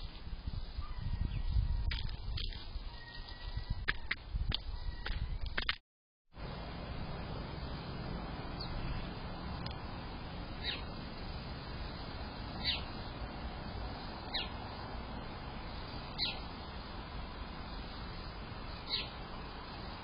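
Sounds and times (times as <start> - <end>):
steady low hiss: 6.4 - 20.0.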